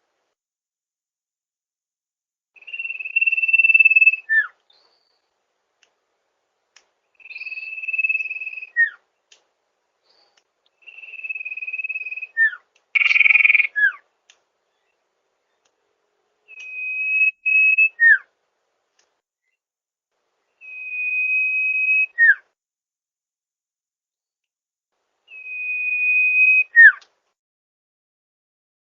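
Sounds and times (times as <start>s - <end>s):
bird whistling song: 2.6s - 5.3s, 7.1s - 9.0s, 10.1s - 14.0s, 16.4s - 18.3s, 20.6s - 22.5s, 25.3s - 27.0s.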